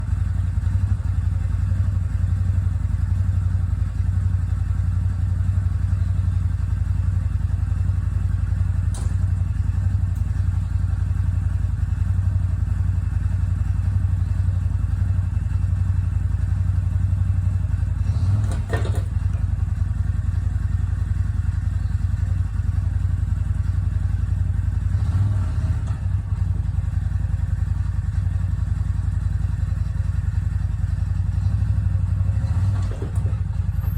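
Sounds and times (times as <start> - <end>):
engine idling: 0.0 - 33.9
short knock: 8.9 - 9.3
metallic clatter: 18.0 - 21.9.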